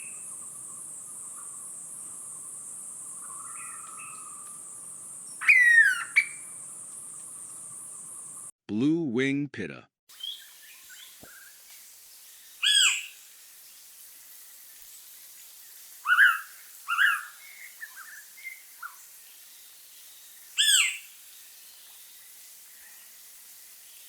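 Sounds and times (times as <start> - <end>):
bird whistling calls: 5.4 - 6.4.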